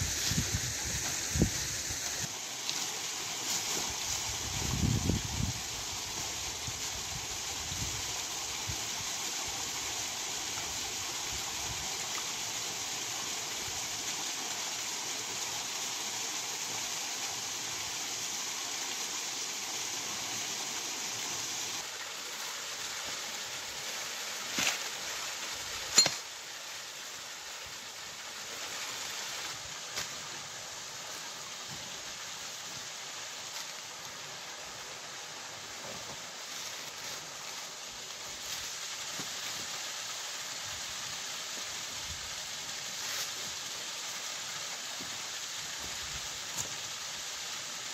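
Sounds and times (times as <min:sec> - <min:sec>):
waterfall and stream rushing: 0:00.0 - 0:47.9.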